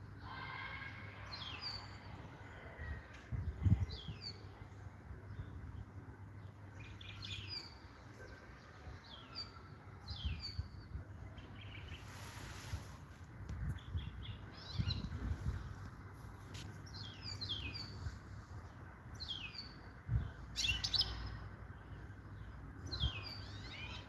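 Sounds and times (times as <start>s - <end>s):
low background rumble: 13.2s - 23.9s.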